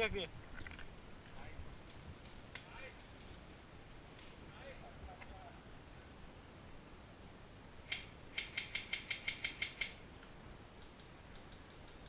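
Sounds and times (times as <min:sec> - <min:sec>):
airsoft gun clicking: 0:07.9 - 0:12.0.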